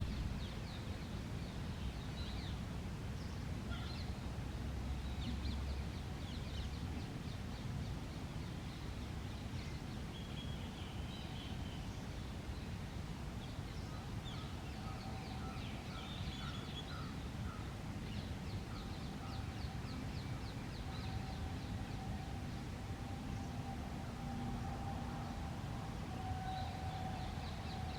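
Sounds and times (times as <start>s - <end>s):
low outdoor rumble: 0.0s - 0.9s, 17.7s - 27.9s.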